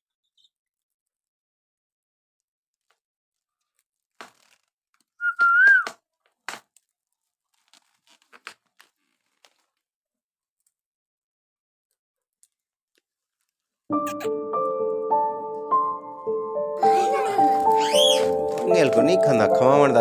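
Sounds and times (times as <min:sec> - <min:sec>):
sharp clicks and crunches: 0:02.8 - 0:05.2, 0:05.8 - 0:09.8
parrot whistling: 0:05.2 - 0:05.9, 0:17.7 - 0:18.4.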